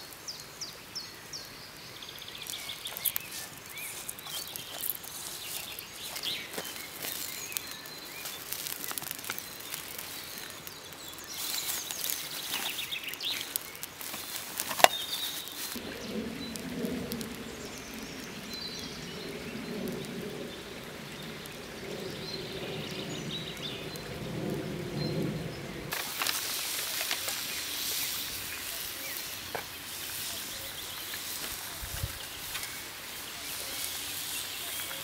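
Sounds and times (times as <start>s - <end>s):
food sizzling in a pan: 2.2s - 15.8s, 25.9s - 35.0s
low outdoor rumble: 15.5s - 26.1s.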